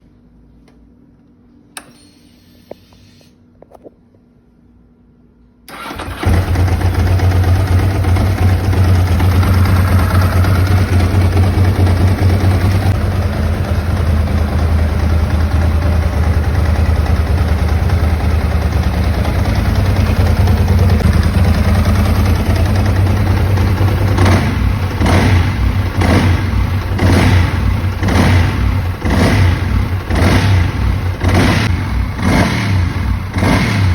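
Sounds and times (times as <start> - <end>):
engine revving: 5.7 - 14.0, 20.8 - 33.9
motorcycle engine idling: 5.7 - 33.5.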